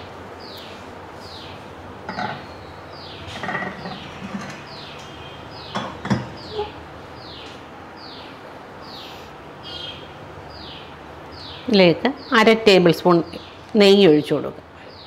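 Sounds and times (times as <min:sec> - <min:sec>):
cookware knocking on burner grate: 0:02.1 - 0:02.4, 0:05.7 - 0:06.4
bird calling: 0:02.1 - 0:06.8.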